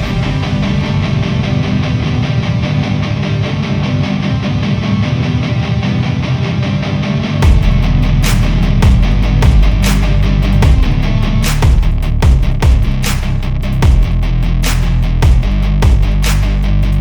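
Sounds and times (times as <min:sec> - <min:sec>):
loud drum hits: 0:00.0 - 0:02.2, 0:07.4 - 0:13.2, 0:13.8 - 0:14.2, 0:15.2 - 0:16.2
rock music with electric guitar: 0:00.0 - 0:15.2.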